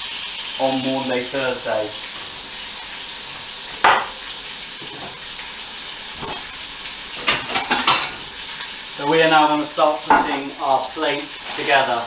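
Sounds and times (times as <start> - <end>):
meat frying in pans: 0.0 - 12.0
plates clinking: 3.7 - 5.2, 6.2 - 8.7.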